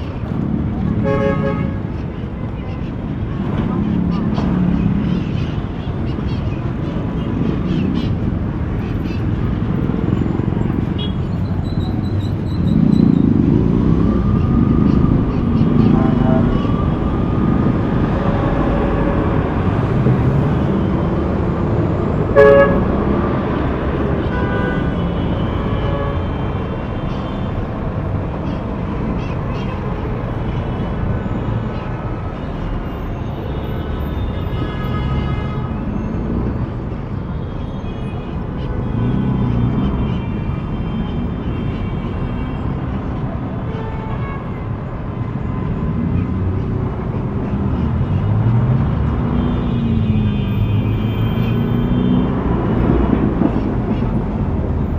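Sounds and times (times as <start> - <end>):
rumble of passing cars: 0.0 - 54.9
car horn toot: 22.3 - 23.0.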